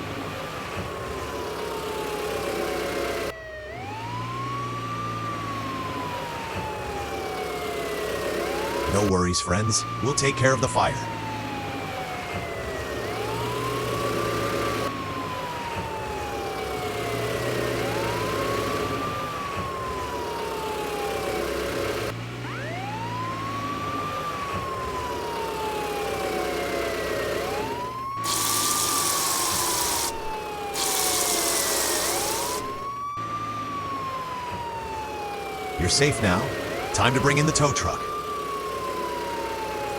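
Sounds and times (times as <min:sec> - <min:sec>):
emergency siren wailing: 0:00.0 - 0:39.9
loud hissing bursts: 0:28.2 - 0:32.9.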